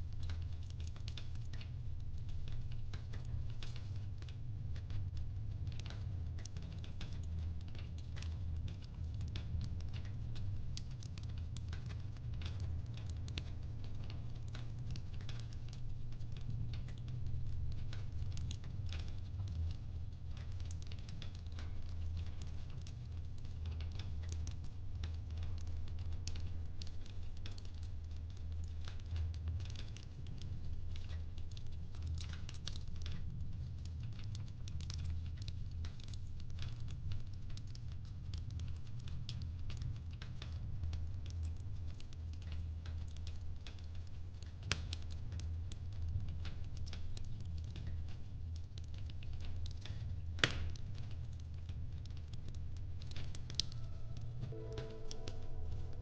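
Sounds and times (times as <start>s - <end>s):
fireplace crackling: 0.2s - 56.0s
low rumble: 53.5s - 56.0s.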